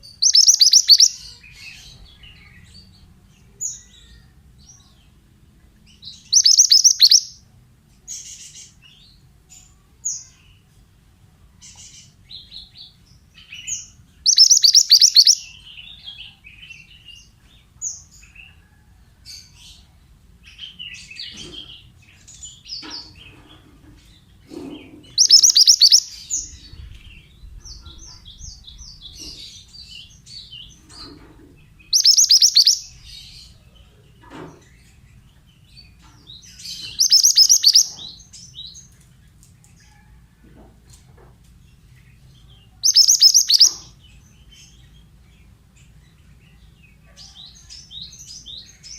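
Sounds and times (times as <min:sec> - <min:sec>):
high bird chirps: 0:00.0 - 0:02.4, 0:06.2 - 0:07.4, 0:14.2 - 0:15.9, 0:25.1 - 0:26.6, 0:31.8 - 0:33.6, 0:36.8 - 0:38.2, 0:42.8 - 0:44.0
bird chattering trills: 0:00.1 - 0:01.3, 0:06.3 - 0:07.4, 0:14.2 - 0:15.6, 0:24.5 - 0:26.6, 0:31.9 - 0:33.0, 0:36.8 - 0:38.2, 0:42.8 - 0:44.0.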